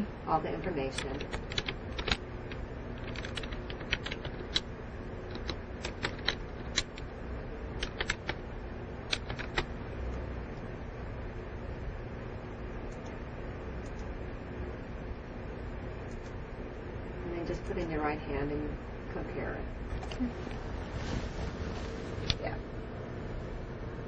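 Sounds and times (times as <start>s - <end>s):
typing on keys: 1.0s - 4.7s, 5.3s - 7.1s, 7.8s - 8.4s, 9.1s - 9.7s.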